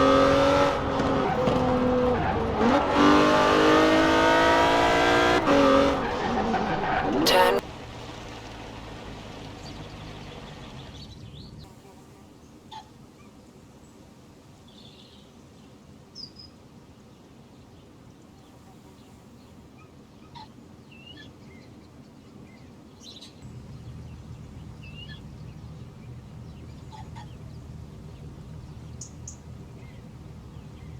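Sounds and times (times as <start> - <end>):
small birds chirping: 9.4 - 30.9
low background rumble: 23.4 - 30.9.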